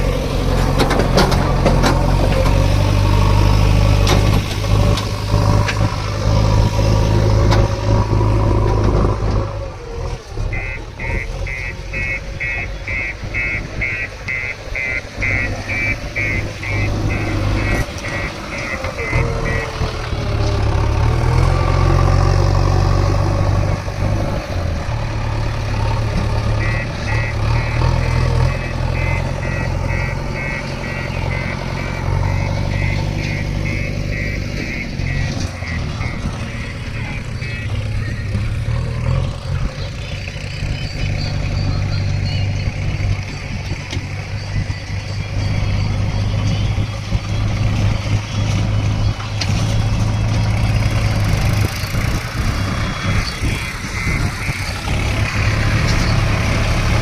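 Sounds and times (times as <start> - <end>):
heavy diesel engines working: 0.0 - 57.0
rapid electronic beeping: 10.5 - 20.8, 26.4 - 39.1, 40.5 - 48.4, 51.4 - 56.2.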